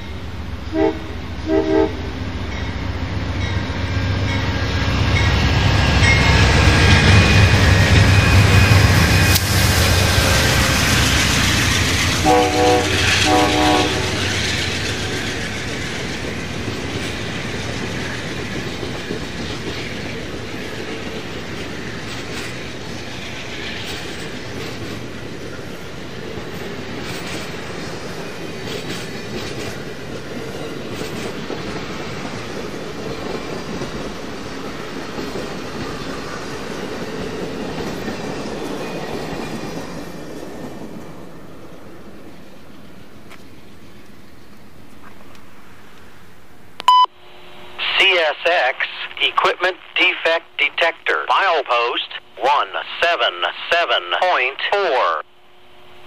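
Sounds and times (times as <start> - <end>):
train rumble and wheel clatter: 0.0 - 47.7
train horn blasts: 0.7 - 2.2, 12.2 - 14.4
wheels clacking over rail joints: 5.0 - 41.1.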